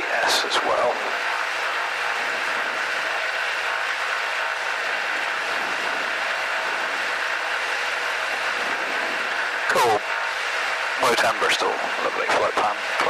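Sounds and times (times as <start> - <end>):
light aircraft engine and propeller: 0.0 - 13.0.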